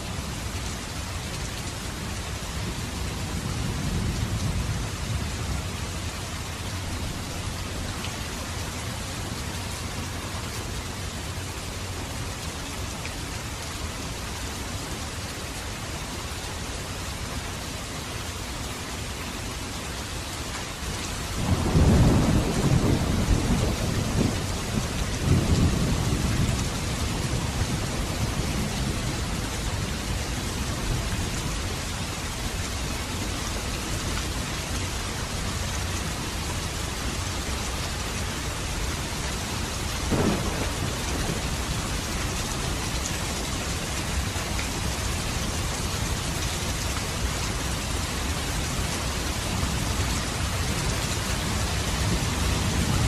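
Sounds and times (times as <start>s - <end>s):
steady rain: 0.0s - 53.0s
thunder rumbling: 21.4s - 29.4s, 40.1s - 45.7s.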